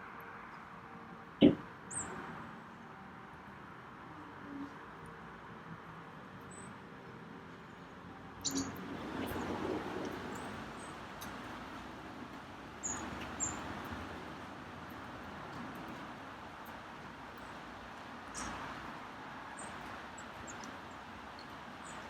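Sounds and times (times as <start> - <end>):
small birds chirping: 8.4 - 9.5.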